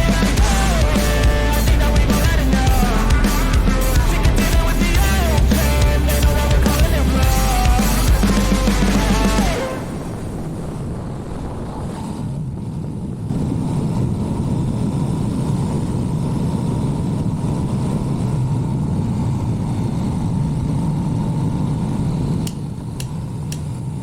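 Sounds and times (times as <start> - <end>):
motorcycle engine running: 0.0 - 9.6
road and wind rush: 0.0 - 24.0.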